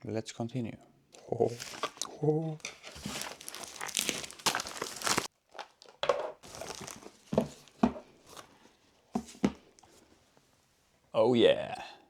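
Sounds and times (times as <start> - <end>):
packaging crinkling: 1.4 - 8.6.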